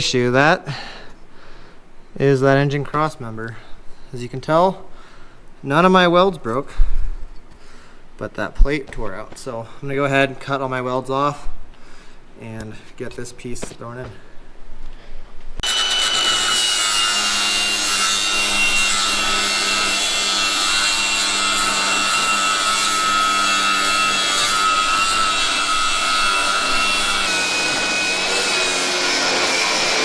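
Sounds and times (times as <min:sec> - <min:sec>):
angle grinder cutting steel: 0:15.6 - 0:30.0.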